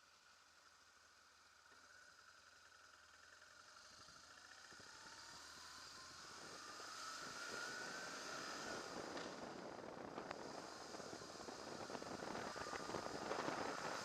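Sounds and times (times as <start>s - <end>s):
motorcycle engine accelerating: 1.4s - 14.0s
rushing wind and road noise: 5.9s - 14.0s.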